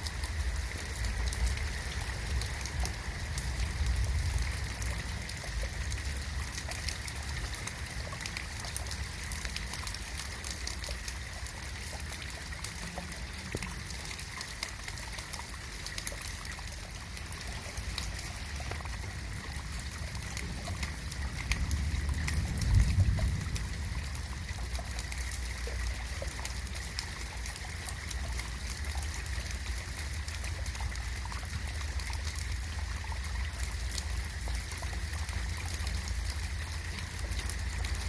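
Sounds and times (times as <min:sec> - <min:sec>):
rain drops ticking: 0:00.0 - 0:38.0
water trickling: 0:00.0 - 0:38.0
low rumble: 0:18.6 - 0:26.0.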